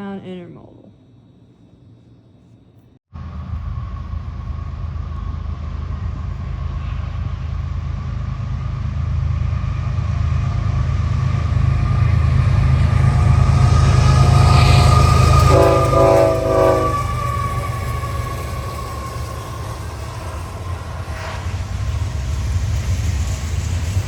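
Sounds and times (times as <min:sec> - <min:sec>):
freight train rumbling: 0:03.2 - 0:24.0
locomotive horn: 0:14.4 - 0:18.3.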